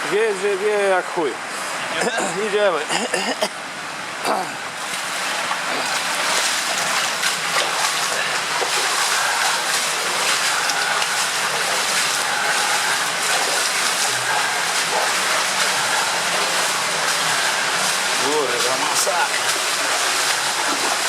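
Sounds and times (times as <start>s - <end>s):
waterfall rushing: 4.1s - 21.0s
people wading through water: 4.2s - 21.0s.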